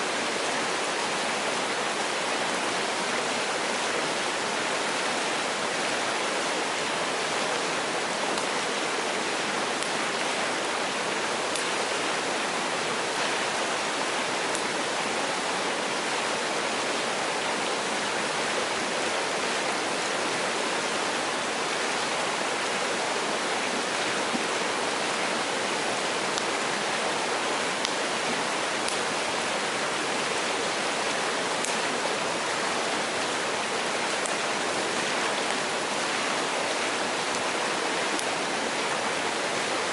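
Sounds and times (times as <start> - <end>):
stream rushing: 0.0 - 39.9
campfire crackling: 8.1 - 10.4, 11.3 - 11.9, 14.5 - 14.7, 28.8 - 29.4, 31.5 - 31.9, 32.8 - 38.4.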